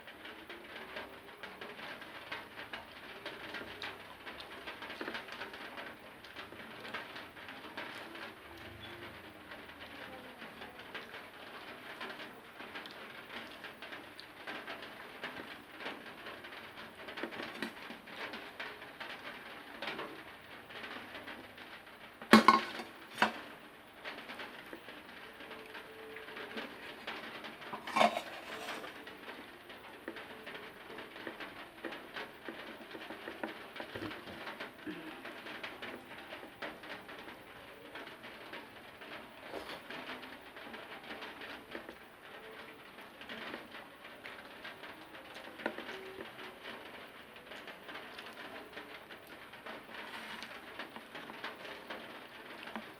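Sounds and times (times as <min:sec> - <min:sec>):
dishes clinking: 0:22.4 - 0:23.4, 0:27.7 - 0:28.9.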